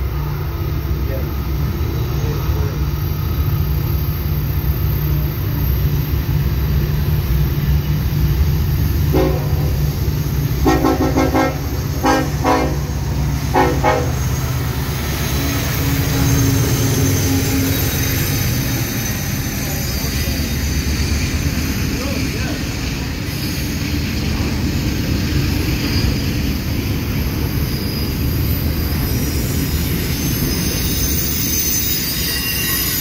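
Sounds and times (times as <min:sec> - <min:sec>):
diesel locomotive engine rumble: 0:00.0 - 0:33.0
train air horn blasts: 0:09.1 - 0:09.8, 0:10.6 - 0:14.2.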